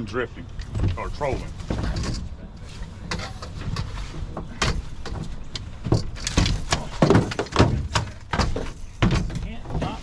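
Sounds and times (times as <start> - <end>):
irregular knocks and clatter: 0.5 - 2.4, 3.1 - 10.0.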